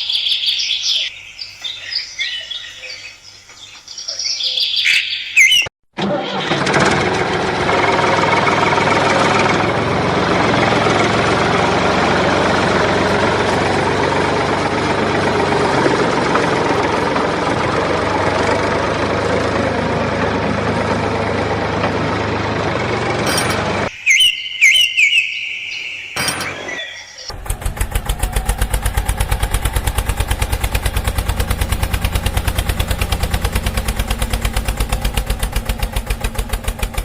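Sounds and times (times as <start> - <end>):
high whistle-like chirps: 23.9 - 27.3.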